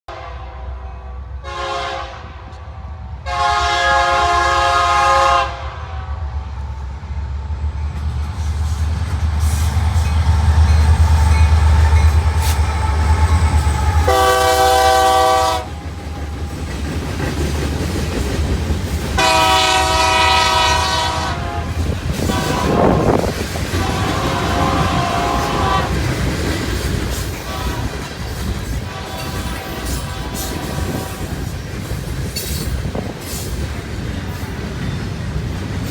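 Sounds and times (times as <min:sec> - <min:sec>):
locomotive air horn blasts: 0:00.1 - 0:06.2, 0:13.9 - 0:15.8, 0:19.2 - 0:26.1, 0:27.4 - 0:28.0, 0:28.8 - 0:31.5
locomotive rumble: 0:06.2 - 0:35.9.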